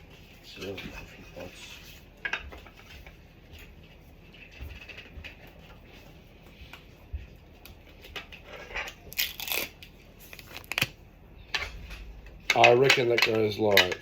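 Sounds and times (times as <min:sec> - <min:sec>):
packaging rustling and crinkling: 0:07.9 - 0:11.0.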